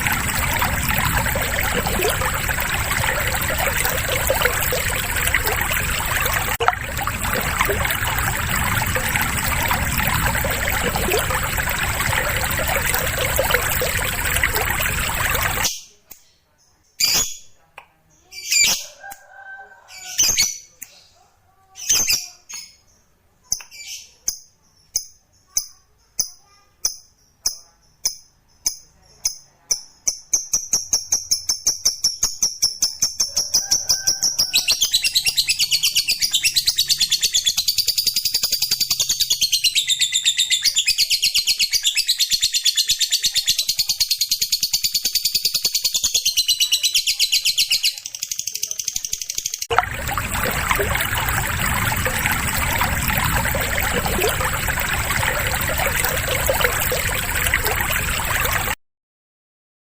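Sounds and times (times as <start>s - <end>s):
rushing water-like noise: 0.0s - 15.7s, 49.7s - 58.8s.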